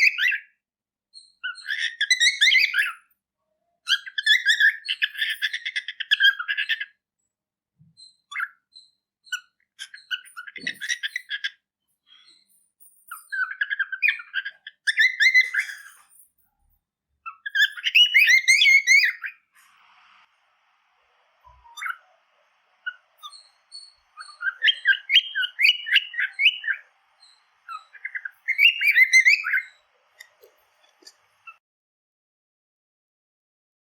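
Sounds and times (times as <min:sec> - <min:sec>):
cockatiel chirping: 0:00.0 - 0:00.5, 0:01.1 - 0:03.1, 0:03.8 - 0:06.9, 0:08.0 - 0:11.6, 0:13.1 - 0:16.2, 0:17.2 - 0:19.5, 0:21.5 - 0:22.2, 0:22.8 - 0:31.6.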